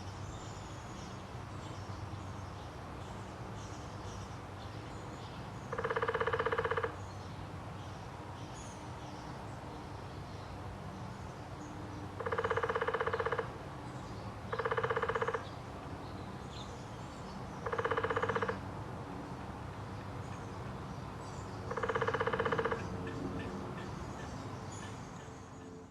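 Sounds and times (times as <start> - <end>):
woodpecker drumming: 5.7 - 7.0, 12.2 - 13.5, 14.5 - 15.5, 17.6 - 18.6, 21.7 - 23.2.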